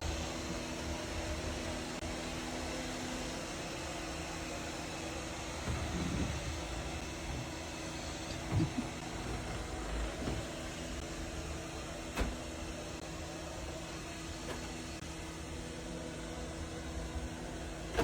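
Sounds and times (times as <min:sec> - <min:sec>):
robot vacuum motor hum: 0:05.3 - 0:11.0.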